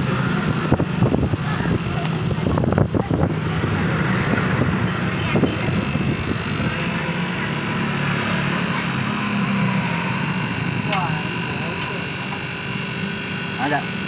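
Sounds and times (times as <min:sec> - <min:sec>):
motor humming: 0:00.0 - 0:14.0
sharp clicks and knocks: 0:11.7 - 0:12.5.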